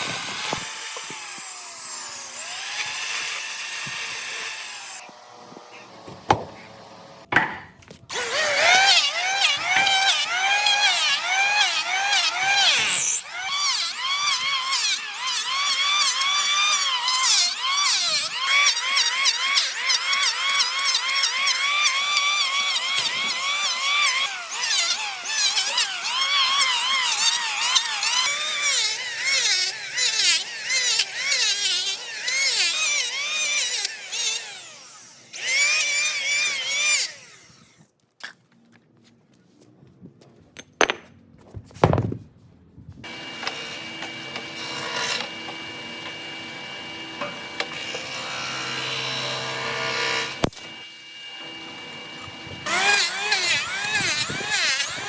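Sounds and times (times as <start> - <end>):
power tool motor whine: 0.0 - 7.3, 8.1 - 37.9, 43.0 - 55.0
sharp knocks: 6.1 - 6.6, 7.3 - 7.8.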